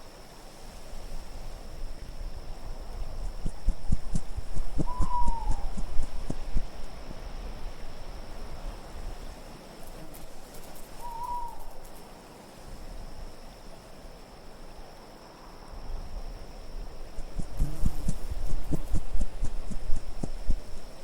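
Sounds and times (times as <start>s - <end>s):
steady wind: 0.0s - 21.0s
owl hooting: 3.8s - 6.8s, 11.0s - 11.8s.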